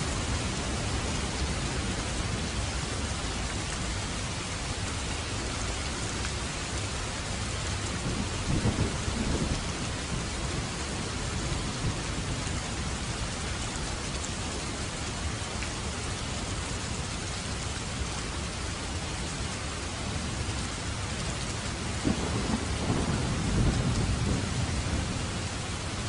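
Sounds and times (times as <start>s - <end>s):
steady rain falling: 0.0s - 26.0s
low rumble of thunder: 6.4s - 14.2s, 20.0s - 26.0s.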